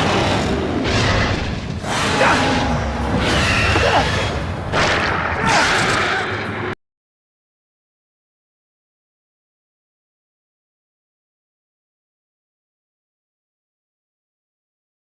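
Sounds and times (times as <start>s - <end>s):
dramatic score music: 0.0s - 6.8s.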